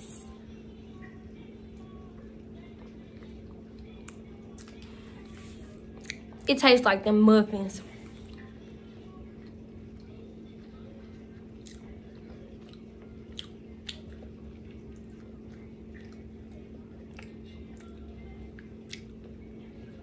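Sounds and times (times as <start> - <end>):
steady low hum: 0.0 - 20.0
person chewing: 2.8 - 6.4, 9.4 - 19.3.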